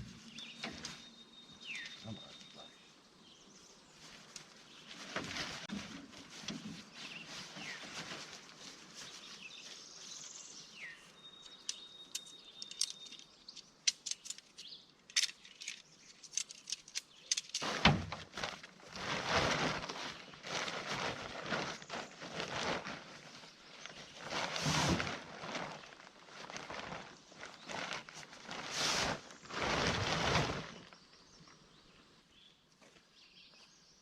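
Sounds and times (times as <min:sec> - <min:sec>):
birds chirping: 0:00.0 - 0:05.6, 0:08.9 - 0:17.5.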